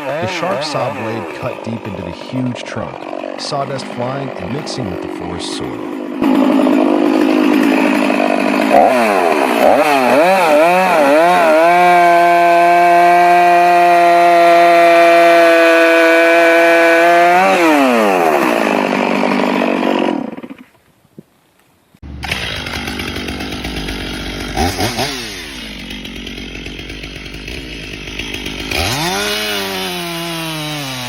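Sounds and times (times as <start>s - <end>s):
chainsaw revving: 0.0s - 20.7s, 22.0s - 31.0s.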